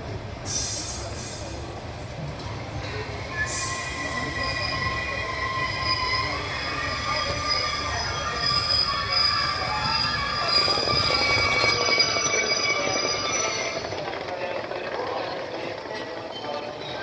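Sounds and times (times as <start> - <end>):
train running: 0.0 - 17.0
high squeal: 3.1 - 14.6.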